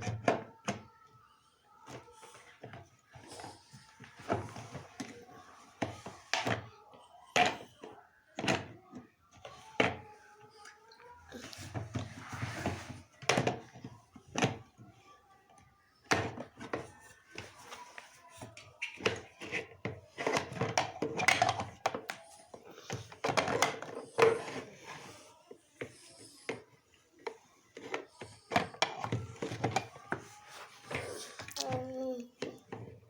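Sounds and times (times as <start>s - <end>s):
objects knocking and tapping: 0.0s - 1.2s, 7.3s - 10.0s, 11.5s - 14.8s, 15.5s - 25.2s, 25.8s - 31.1s, 32.4s - 33.0s.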